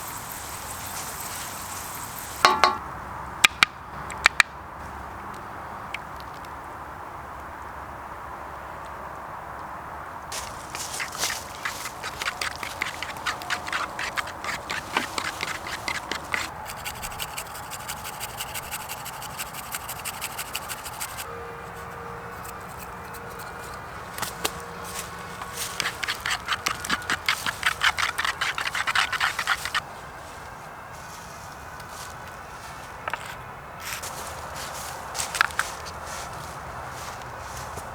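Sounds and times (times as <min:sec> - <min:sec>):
utensil clicking rapidly: 0:10.4 - 0:21.2, 0:25.4 - 0:29.8.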